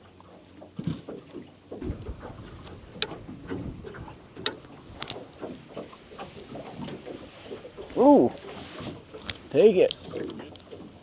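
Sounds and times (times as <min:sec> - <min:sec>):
wind: 0:00.7 - 0:11.0
sharp clicks: 0:01.8 - 0:03.4, 0:04.4 - 0:05.4.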